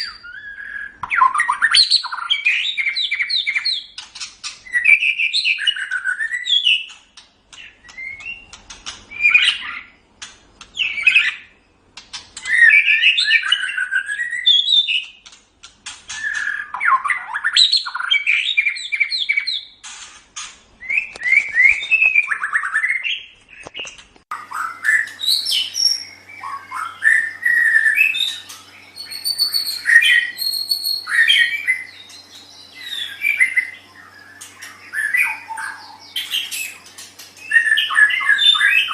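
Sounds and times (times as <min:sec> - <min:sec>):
bird singing whistled phrases: 0:00.0 - 0:03.9, 0:04.6 - 0:06.9, 0:12.4 - 0:15.1, 0:16.1 - 0:19.7, 0:24.4 - 0:36.8, 0:37.4 - 0:38.9
faint steady hum: 0:23.2 - 0:38.9.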